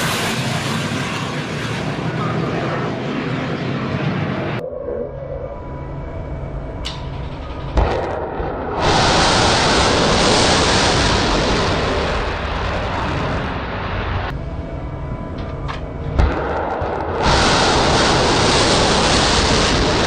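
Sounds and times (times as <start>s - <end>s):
rocket motor roaring: 7.3s - 14.3s, 16.3s - 20.0s
missile launch blast: 7.6s - 14.3s, 16.2s - 20.0s.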